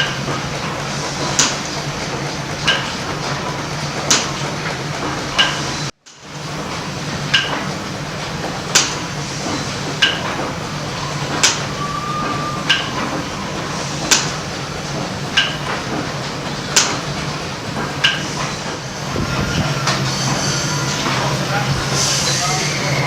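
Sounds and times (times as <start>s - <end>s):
rhythmic metallic clacks: 0.0s - 23.0s
machinery low hum: 6.3s - 23.0s.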